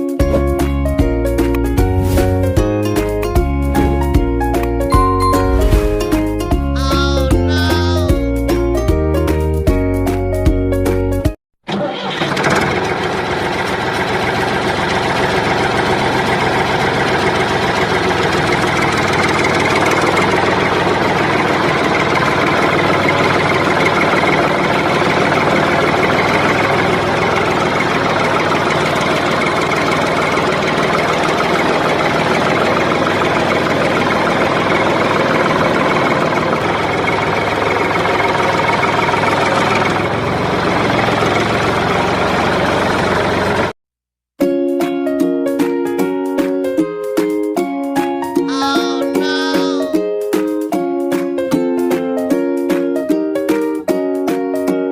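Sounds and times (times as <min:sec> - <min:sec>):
small engine running: 0:11.7 - 0:43.7.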